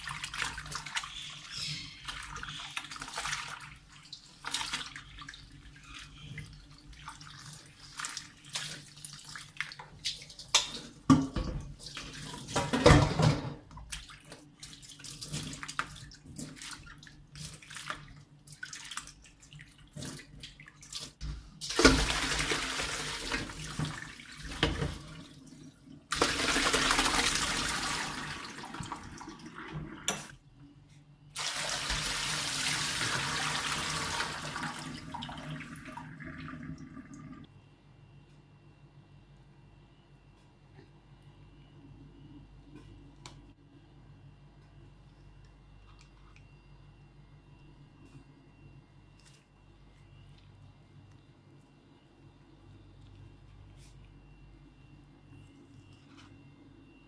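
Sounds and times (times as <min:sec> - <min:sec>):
tap water running into sink: 0:31.4 - 0:37.4.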